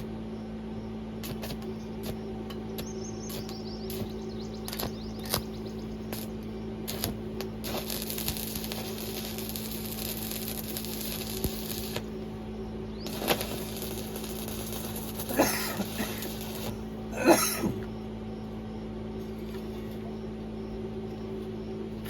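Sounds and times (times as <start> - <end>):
steady electrical hum: 0.0 - 22.0
welding arc crackling: 1.2 - 17.9.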